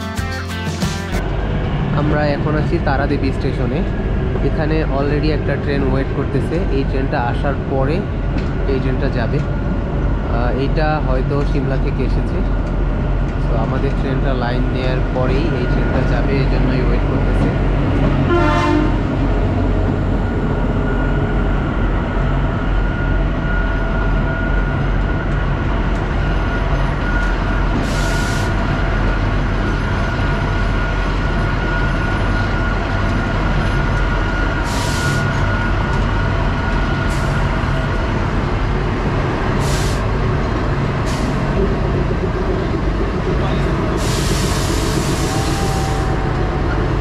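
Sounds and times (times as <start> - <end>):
train engine droning: 0.0 - 47.0
sharp air hisses: 39.6 - 40.1, 44.0 - 45.6.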